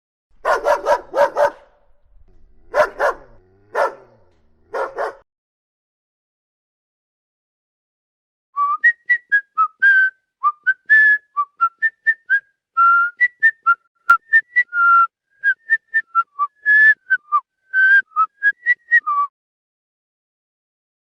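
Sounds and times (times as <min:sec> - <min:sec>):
whistled tune: 0:08.6 - 0:19.3.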